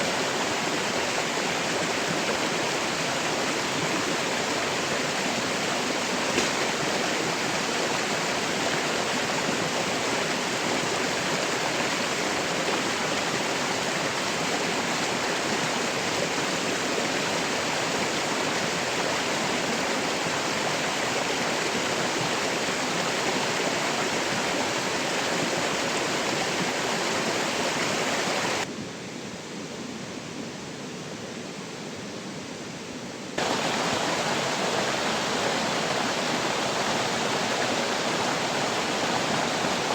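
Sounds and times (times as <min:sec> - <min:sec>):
water rushing: 0:00.0 - 0:28.7, 0:33.4 - 0:39.9.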